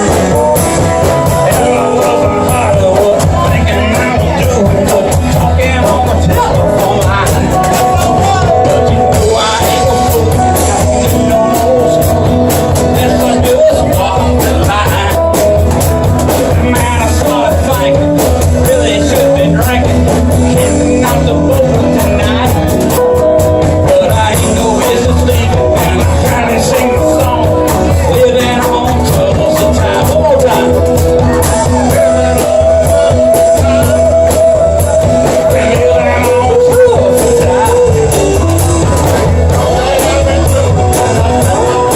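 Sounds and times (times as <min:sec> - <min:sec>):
amplified guitar: 0:00.0 - 0:41.9
drums: 0:00.0 - 0:41.9
person singing: 0:00.0 - 0:41.9.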